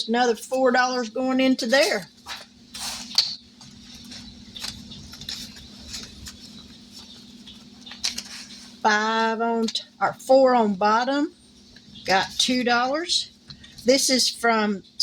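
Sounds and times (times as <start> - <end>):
steady low hum: 0.0 - 15.0
paper bills rustling: 0.4 - 9.3.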